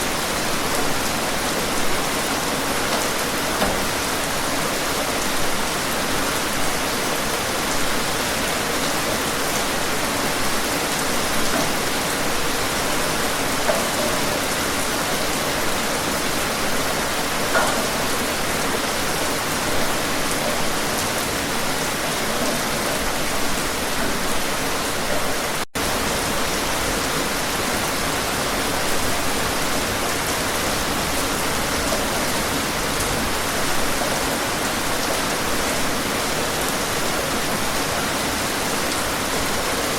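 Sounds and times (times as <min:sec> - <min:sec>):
steady rain hiss: 0:00.0 - 0:39.9
faint raindrop taps: 0:02.9 - 0:03.9.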